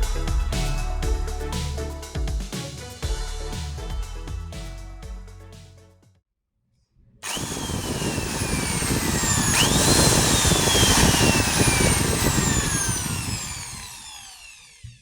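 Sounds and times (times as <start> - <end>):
drill grinding noise: 7.2 - 15.0
electric drill whining: 7.2 - 15.0.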